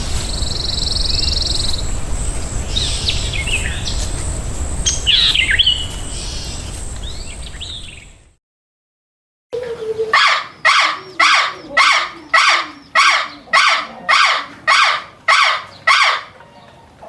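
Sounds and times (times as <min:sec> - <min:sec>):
animal calling loudly: 0:09.7 - 0:16.5.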